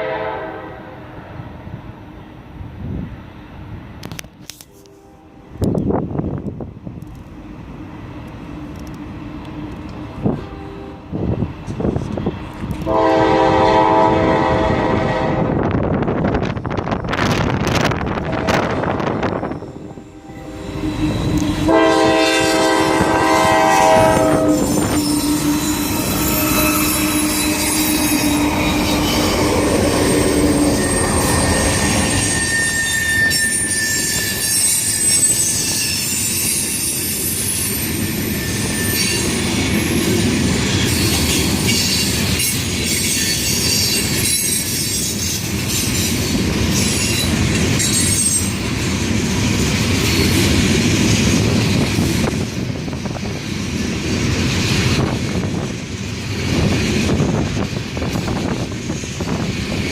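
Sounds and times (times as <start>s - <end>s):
train horn: 0.0s - 1.2s, 4.7s - 5.6s, 10.3s - 11.2s, 12.8s - 15.8s, 18.2s - 35.7s
train wheels squealing and clattering: 16.5s - 59.9s.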